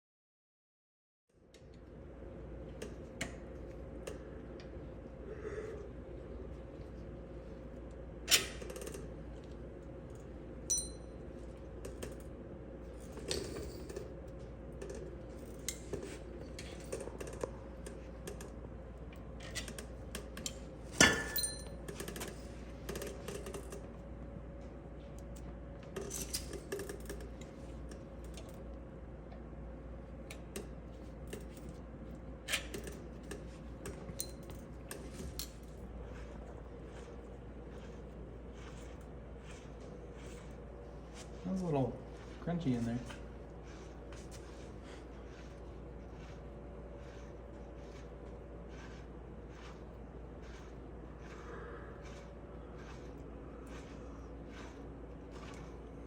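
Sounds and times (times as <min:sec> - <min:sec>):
steady hum: 0:01.4 - 0:56.0
metal tools clinking: 0:21.0 - 0:22.4.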